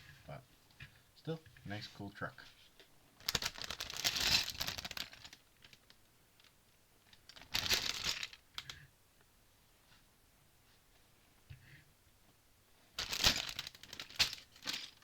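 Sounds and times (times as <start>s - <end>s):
plastic packaging rustling: 3.2s - 6.0s, 7.2s - 8.4s, 13.0s - 15.0s.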